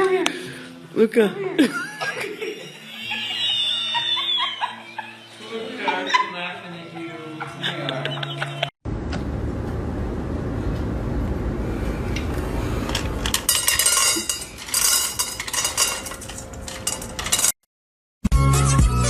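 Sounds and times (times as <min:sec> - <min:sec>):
low rumbling: 0:08.9 - 0:17.1
small hard objects clattering: 0:12.9 - 0:17.6.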